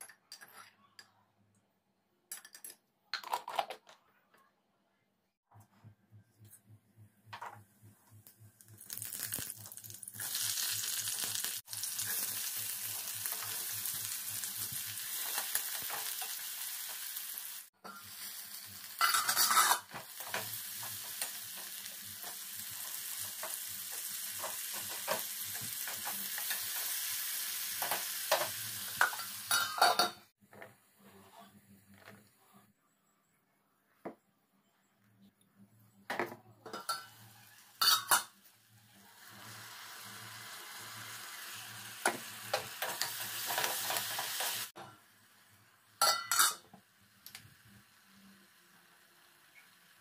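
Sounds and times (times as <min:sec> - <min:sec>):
oil sizzling in a pan: 0:08.5 - 0:30.3, 0:36.7 - 0:50.0
metal spoon scraping a pan: 0:19.0 - 0:27.0, 0:36.7 - 0:38.4, 0:46.0 - 0:46.7.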